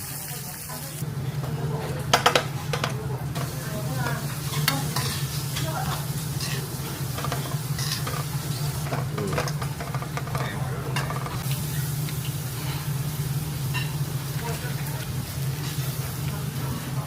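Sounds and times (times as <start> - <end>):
food sizzling on a grill: 0.0 - 17.0
metal utensil scraping and clinking: 4.5 - 11.4.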